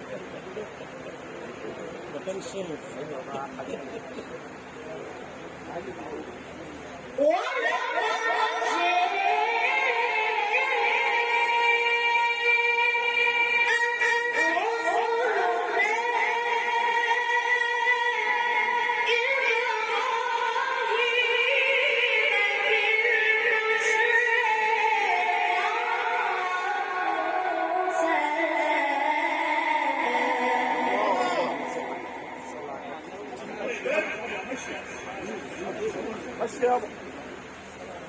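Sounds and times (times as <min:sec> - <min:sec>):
man reciting in melodic chant: 0:30.6 - 0:37.0.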